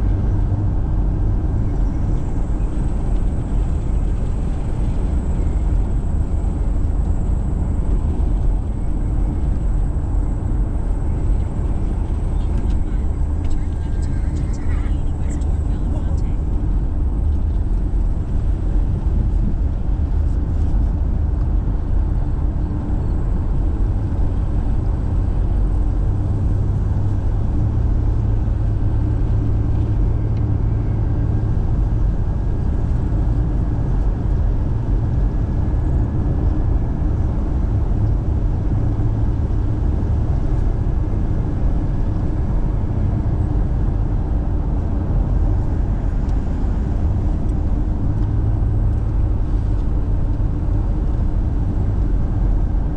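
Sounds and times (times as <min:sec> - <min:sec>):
car driving rumble: 0:00.0 - 0:52.9.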